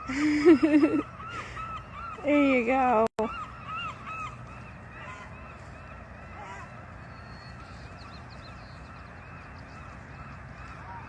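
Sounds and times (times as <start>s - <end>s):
geese honking: 0.7s - 8.2s.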